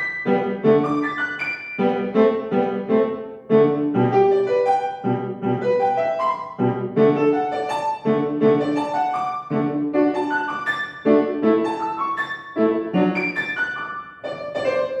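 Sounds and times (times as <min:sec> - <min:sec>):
solo piano piece: 0:00.0 - 0:15.0.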